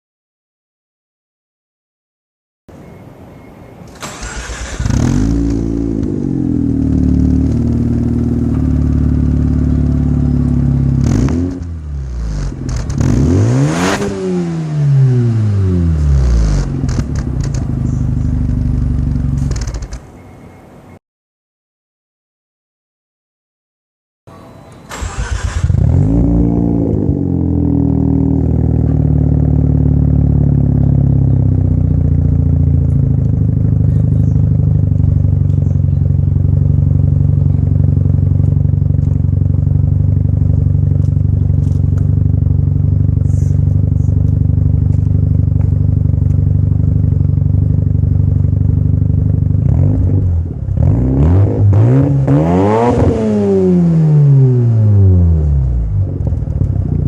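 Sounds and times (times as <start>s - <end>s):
rotary engine starting and idling: 3.9s - 13.3s, 24.9s - 26.7s, 30.7s - 50.1s
engine revving: 4.0s - 19.9s, 24.9s - 47.0s, 48.6s - 56.8s.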